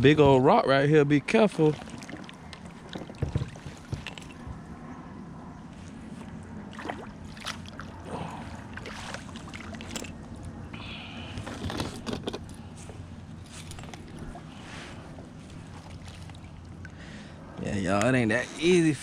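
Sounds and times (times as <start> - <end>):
steady low hum: 0.0 - 19.0
knocks and clicks of kayak gear: 11.4 - 12.6.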